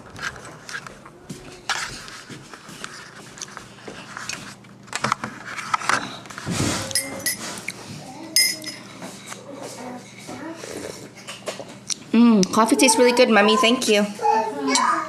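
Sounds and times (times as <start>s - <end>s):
tableware clinking: 6.8s - 7.6s, 8.3s - 8.9s
bright ringing clinks: 6.9s - 7.5s, 8.4s - 8.8s.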